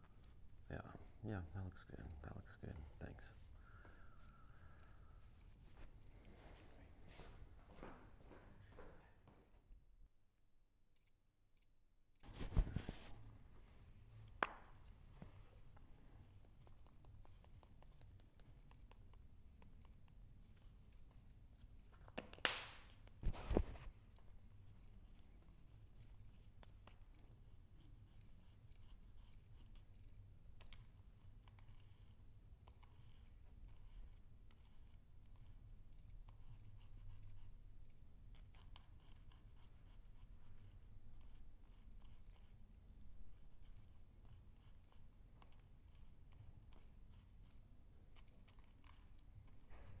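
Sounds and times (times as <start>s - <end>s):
cricket chirping: 4.2s - 6.2s, 11.0s - 11.7s, 15.6s - 15.8s, 16.9s - 18.1s, 19.8s - 21.0s, 26.0s - 26.3s, 28.2s - 30.2s, 32.7s - 33.4s, 36.0s - 38.0s, 41.9s - 43.1s, 44.8s - 46.0s.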